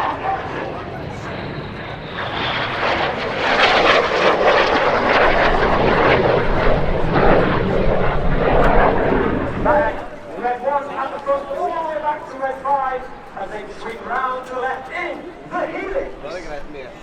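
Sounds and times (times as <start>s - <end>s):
jets flying past low: 0.0s - 10.4s.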